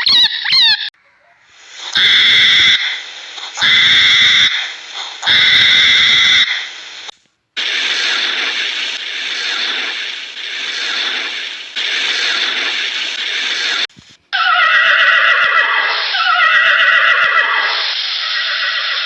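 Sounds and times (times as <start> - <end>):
harsh noisy sound: 1.7 - 14.0
horse whinnying: 14.4 - 19.0.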